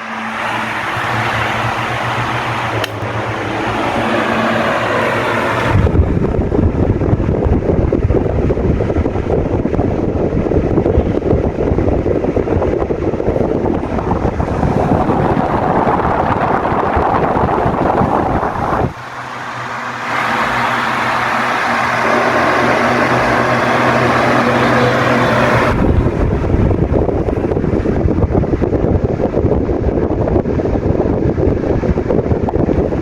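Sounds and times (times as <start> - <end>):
air rushing from fan blades: 0.0 - 33.0
fan motor hum: 0.0 - 33.0
wind noise on microphone: 0.0 - 33.0.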